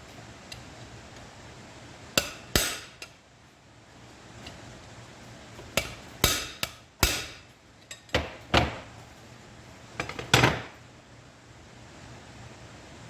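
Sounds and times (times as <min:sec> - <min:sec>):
hammer striking metal: 0:02.2 - 0:03.2, 0:05.8 - 0:07.5.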